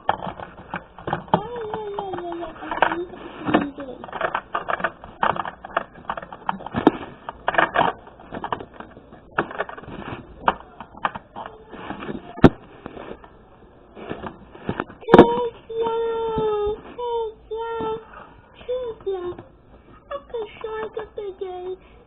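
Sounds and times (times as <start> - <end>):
clicks and knocks of small objects: 0.0 - 13.4.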